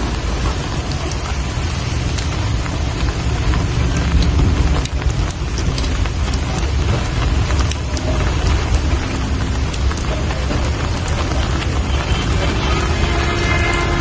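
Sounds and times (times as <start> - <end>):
low rumble: 0.0 - 14.0
rain falling: 0.0 - 14.0.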